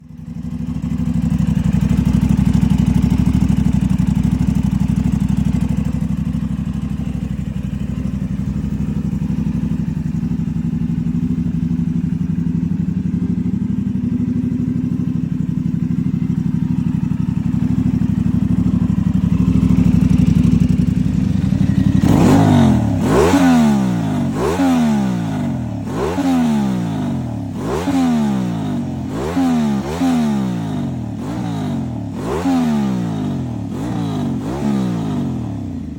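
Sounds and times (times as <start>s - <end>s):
motorcycle engine idling: 0.0s - 35.9s
engine revving throttle blips: 18.4s - 35.9s.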